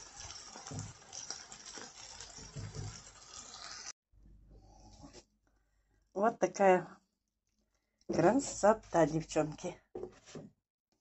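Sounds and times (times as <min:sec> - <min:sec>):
vegetables sizzling in oil: 0:00.0 - 0:03.9.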